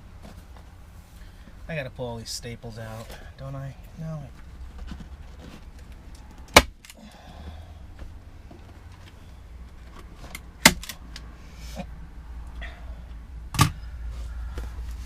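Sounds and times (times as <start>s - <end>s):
low steady hum: 0.0s - 15.0s
handling noises: 4.2s - 11.3s.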